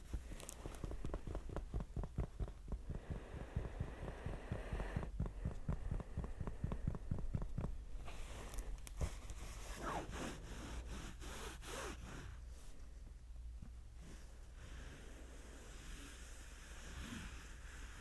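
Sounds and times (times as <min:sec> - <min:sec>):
muffled low tapping: 0:00.0 - 0:08.0.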